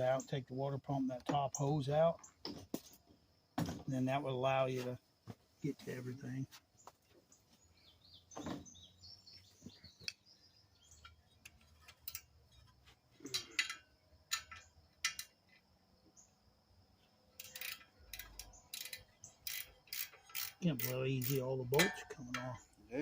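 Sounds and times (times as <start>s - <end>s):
bird chirps: 6.8s - 11.8s
wrenches clicking on bolts: 11.1s - 15.6s, 17.4s - 22.6s.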